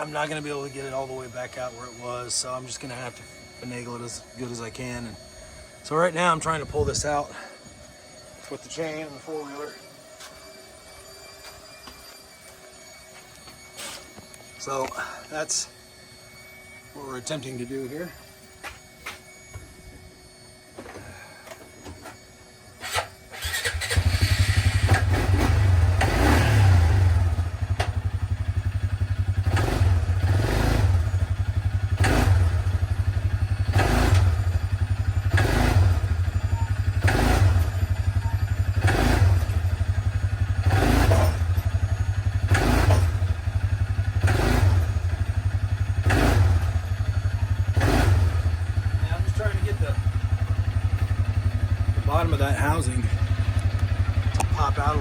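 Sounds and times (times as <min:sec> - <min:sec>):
atv engine running with surges: 0:20.8 - 0:55.0.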